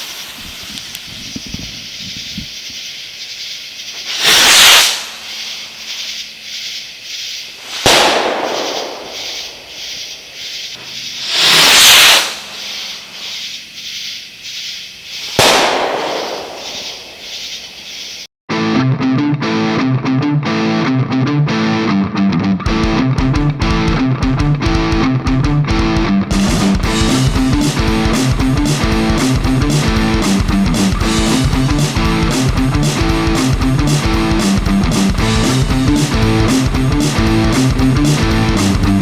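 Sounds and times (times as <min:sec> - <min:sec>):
firework rocket launching: 0:00.0 - 0:01.9, 0:03.4 - 0:18.3
firework crackling: 0:00.0 - 0:18.3
firework bang: 0:04.0 - 0:06.1, 0:07.6 - 0:13.4, 0:15.2 - 0:17.8
electric guitar music: 0:18.5 - 0:39.0.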